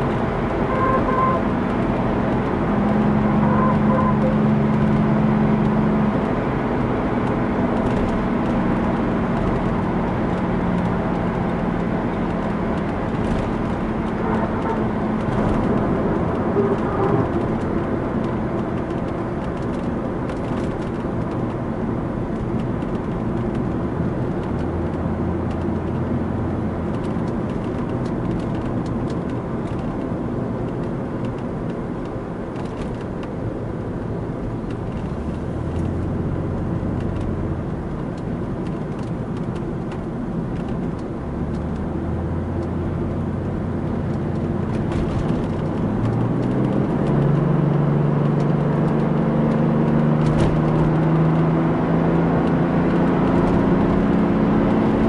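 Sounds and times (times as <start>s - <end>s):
diesel engine drone: 0.0s - 55.0s.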